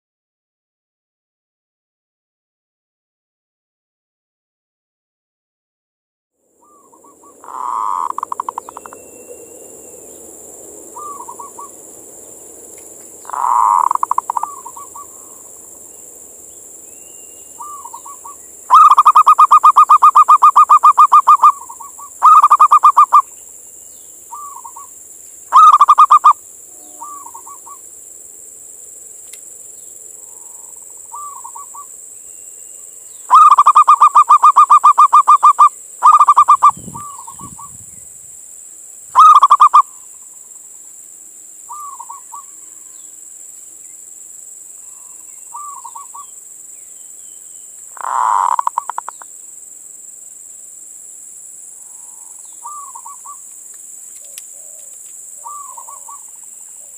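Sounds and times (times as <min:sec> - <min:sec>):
dove cooing: 0:06.6 - 0:09.0, 0:10.9 - 0:11.8, 0:13.2 - 0:15.5, 0:17.6 - 0:23.3, 0:24.3 - 0:24.9, 0:25.5 - 0:27.8, 0:30.3 - 0:31.9, 0:33.3 - 0:37.8, 0:39.2 - 0:40.0, 0:41.7 - 0:42.5, 0:45.0 - 0:46.3, 0:48.0 - 0:49.2, 0:51.9 - 0:53.4, 0:54.2 - 0:56.9
soft bird calls: 0:06.6 - 0:10.3, 0:10.9 - 0:11.8, 0:12.8 - 0:27.8, 0:29.8 - 0:38.0, 0:39.2 - 0:40.6, 0:41.7 - 0:43.2, 0:44.8 - 0:49.3, 0:51.8 - 0:53.5, 0:54.1 - 0:56.9
faint high hiss: 0:06.6 - 0:56.9.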